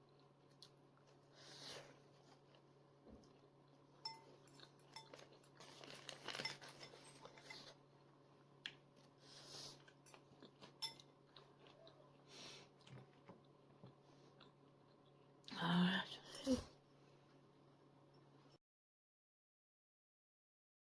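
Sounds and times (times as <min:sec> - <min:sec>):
chewing noodles: 0:00.0 - 0:15.4.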